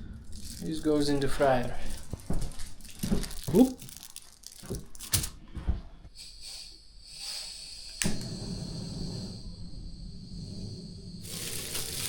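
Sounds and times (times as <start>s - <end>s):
potatoes sizzling in oil: 11.2s - 12.0s.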